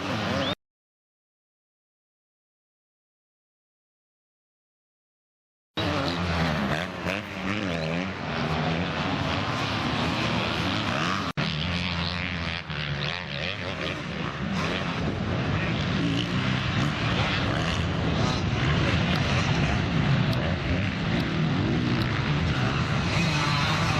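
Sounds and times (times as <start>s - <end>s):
motocross bike engines revving: 0.0s - 0.6s, 5.8s - 23.9s.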